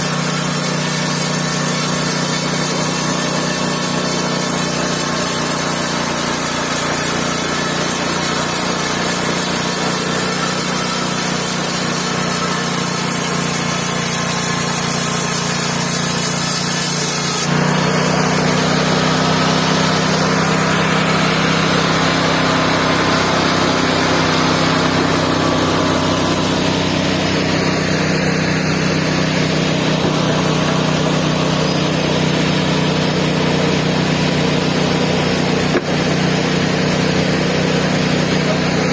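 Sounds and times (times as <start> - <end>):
band sawmill running: 0.0 - 38.9.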